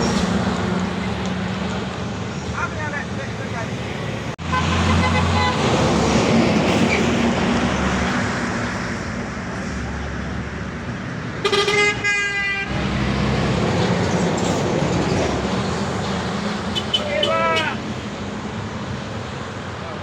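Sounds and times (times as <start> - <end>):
road traffic: 0.0 - 20.0
vehicle horn: 4.4 - 5.7, 11.4 - 12.7.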